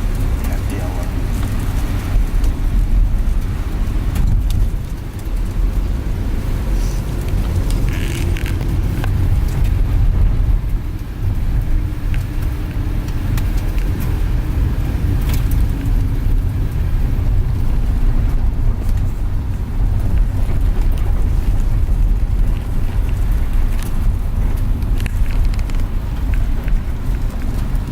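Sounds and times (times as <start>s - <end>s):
engine and tyre rumble: 0.0s - 27.9s
light clicks and rattles: 19.9s - 27.9s.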